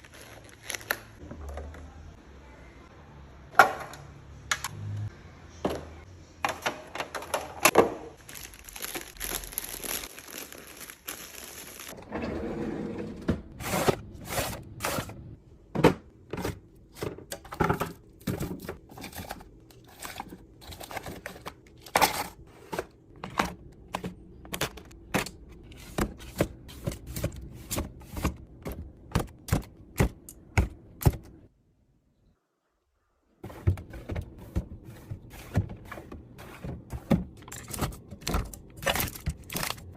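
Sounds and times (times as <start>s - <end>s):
packaging crinkling and tearing: 0.0s - 1.2s, 8.2s - 12.0s.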